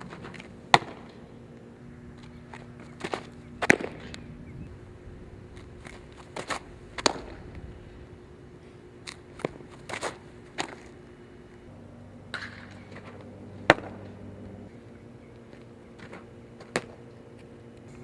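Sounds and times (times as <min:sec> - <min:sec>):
faint steady hum: 0:00.0 - 0:18.0
softball cracks: 0:03.0 - 0:04.3, 0:05.8 - 0:07.6, 0:12.3 - 0:14.3.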